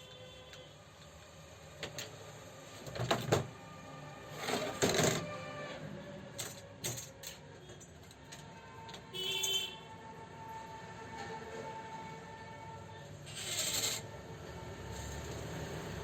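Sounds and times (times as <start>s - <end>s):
metal tools clinking: 6.4s - 8.5s.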